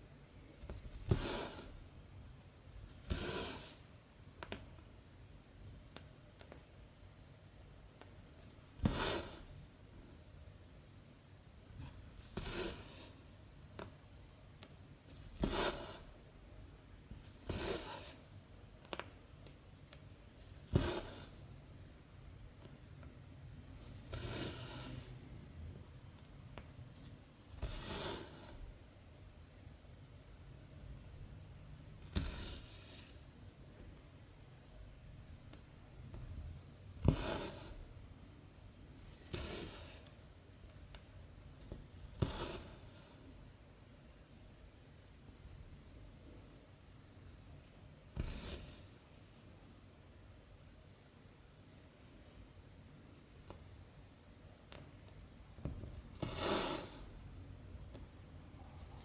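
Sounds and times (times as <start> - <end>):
thread rasping through fabric: 15.1 - 16.2, 20.6 - 21.4, 36.9 - 38.0, 39.2 - 40.2, 55.6 - 57.2.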